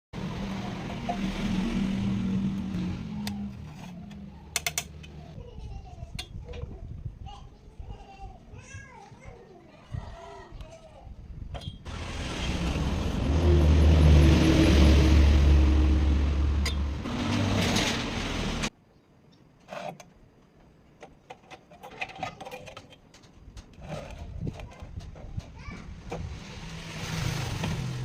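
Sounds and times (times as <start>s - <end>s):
scattered clicks and knocks: 3.3s - 5.3s.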